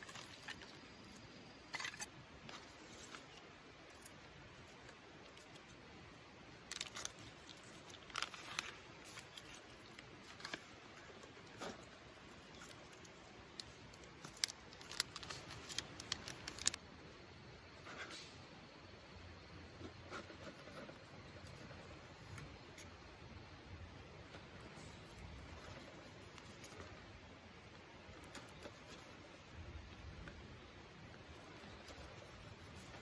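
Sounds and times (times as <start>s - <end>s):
faint steady background noise: 0.0s - 33.0s
rustling of small objects: 6.6s - 16.8s
light clicks and snips: 6.7s - 16.8s.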